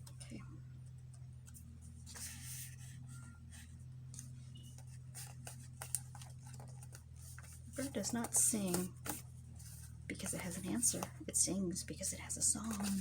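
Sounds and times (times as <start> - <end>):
steady low hum: 0.0 - 13.0
paper rustling: 1.5 - 3.7, 4.6 - 11.2, 12.6 - 13.0.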